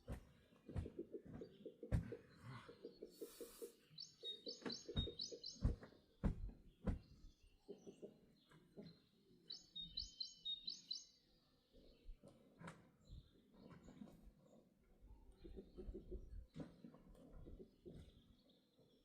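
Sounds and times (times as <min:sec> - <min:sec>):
songbird high chirps: 0:03.1 - 0:08.2, 0:08.8 - 0:12.1.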